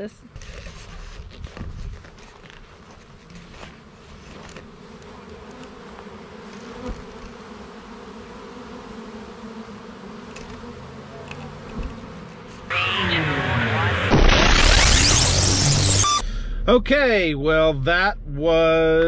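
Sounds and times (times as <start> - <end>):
honey bees buzzing: 2.1 - 16.2.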